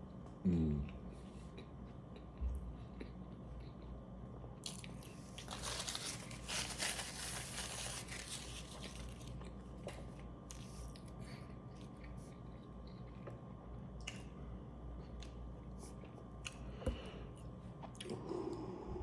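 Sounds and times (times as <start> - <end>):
crunchy wet chewing: 8.0 - 14.4.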